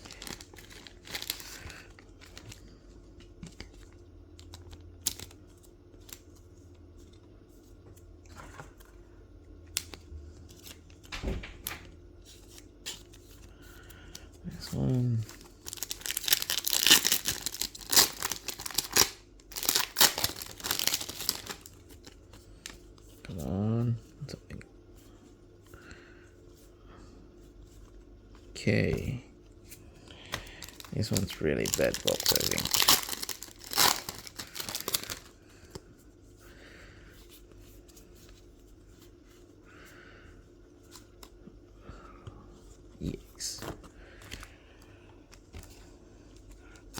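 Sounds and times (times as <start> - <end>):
foil wrapper crinkling: 0.0 - 2.7, 14.6 - 22.7, 30.4 - 35.3
cards rustling: 0.0 - 7.7, 9.7 - 23.5, 27.6 - 35.9.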